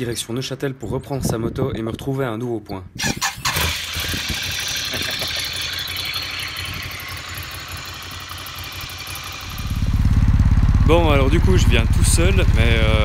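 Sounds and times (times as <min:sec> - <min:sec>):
motorcycle engine idling: 0:03.7 - 0:13.0.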